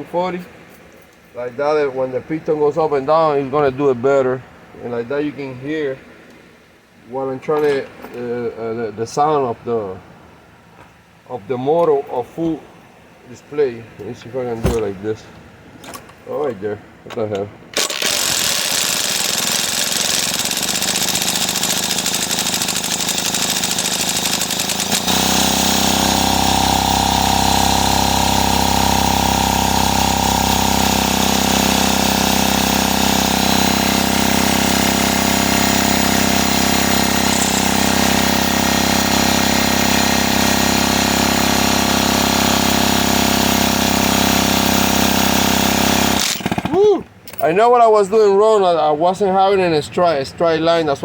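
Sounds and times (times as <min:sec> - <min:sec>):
drill cranking engine: 0:17.7 - 0:47.4.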